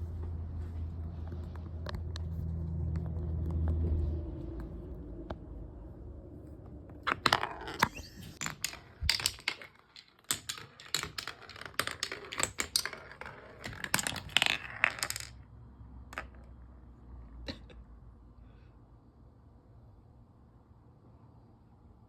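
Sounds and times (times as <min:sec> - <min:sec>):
marbles clacking in wooden run: 0:07.0 - 0:15.4, 0:16.1 - 0:16.5.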